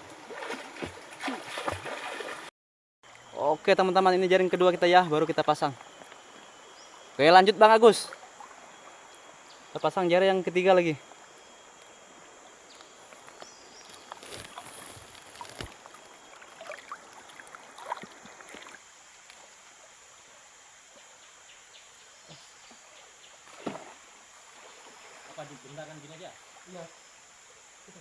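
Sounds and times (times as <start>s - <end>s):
river water splashing: 0.0s - 2.5s, 13.1s - 19.9s, 23.4s - 26.9s
faint steady high hum: 3.1s - 28.0s.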